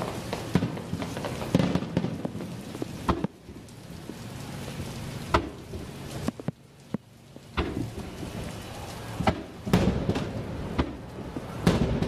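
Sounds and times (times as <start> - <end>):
fireworks sharp bangs: 0.0 - 3.7, 7.5 - 8.4, 9.1 - 12.0
fireworks crackling: 0.0 - 12.0.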